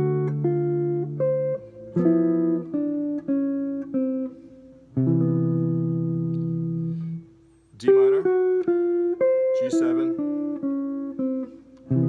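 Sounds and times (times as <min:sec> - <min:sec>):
jazz guitar chords and notes: 0:00.0 - 0:12.0.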